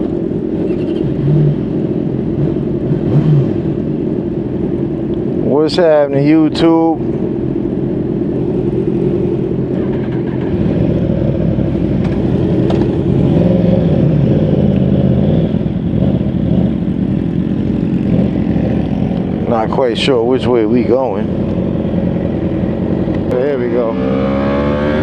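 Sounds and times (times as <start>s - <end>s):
motorcycle engine running: 7.1s - 25.0s.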